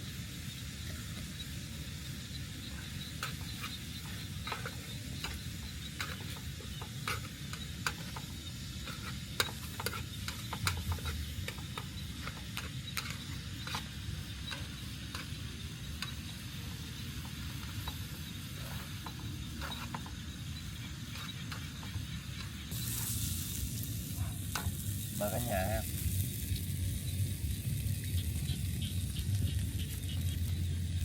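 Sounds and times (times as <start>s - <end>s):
food frying with crackling pops: 0.0s - 31.0s
steady low rumble: 22.3s - 31.0s.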